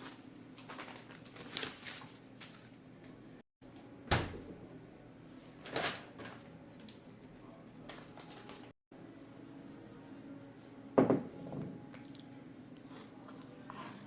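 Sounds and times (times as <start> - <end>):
sharp knocks in a kitchen: 4.1 - 4.6, 11.0 - 11.7.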